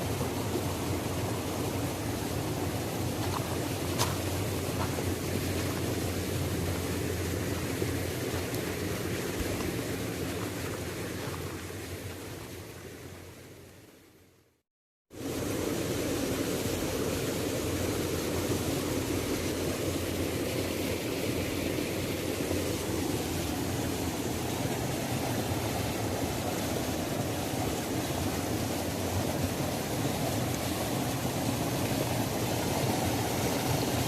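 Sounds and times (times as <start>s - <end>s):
waterfall rushing: 22.5s - 34.0s.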